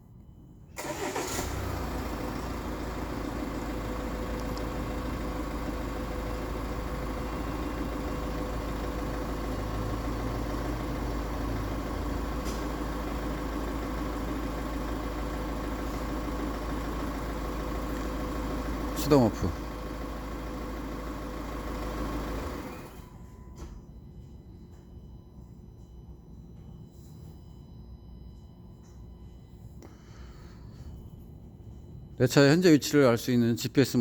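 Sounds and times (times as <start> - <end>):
car engine idling: 0.8 - 23.3.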